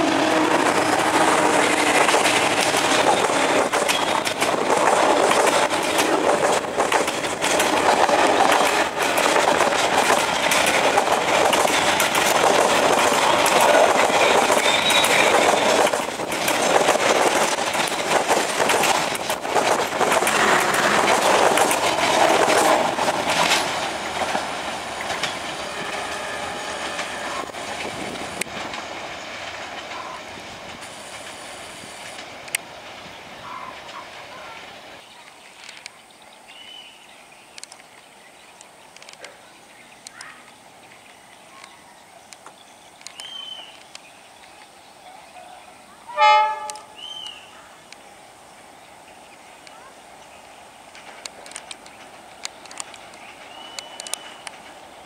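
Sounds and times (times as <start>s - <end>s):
wheels clacking over rail joints: 0.0s - 36.1s, 49.2s - 55.0s
train coaches rumbling past: 0.0s - 55.0s.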